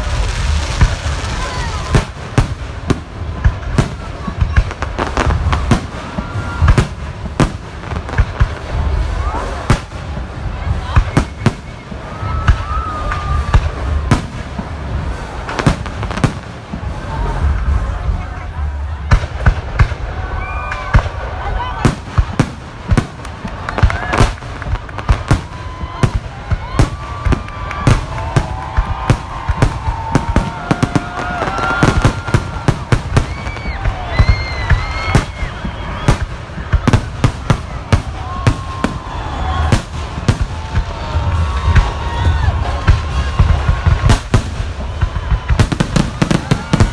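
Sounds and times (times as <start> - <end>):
firework booms: 0.0 - 46.9
low rumble: 0.0 - 46.9
thin firework whistle: 10.8 - 14.1, 25.6 - 37.4.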